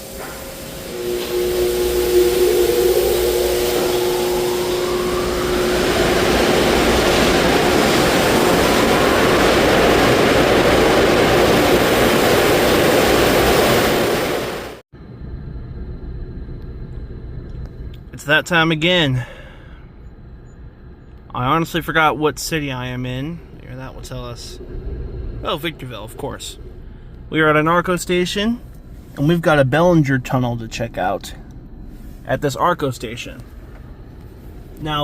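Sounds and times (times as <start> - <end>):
low steady hum: 0.0 - 12.7, 15.0 - 35.0
dryer blowers rushing air: 0.0 - 14.8.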